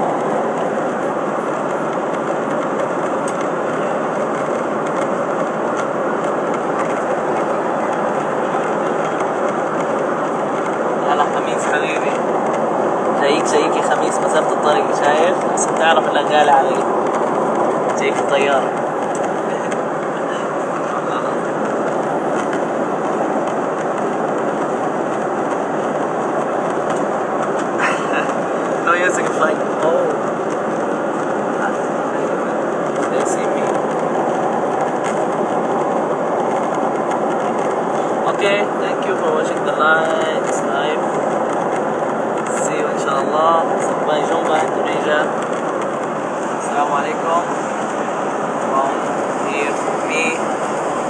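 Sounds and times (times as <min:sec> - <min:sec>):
airliner cabin engine rush: 0:00.0 - 0:51.0.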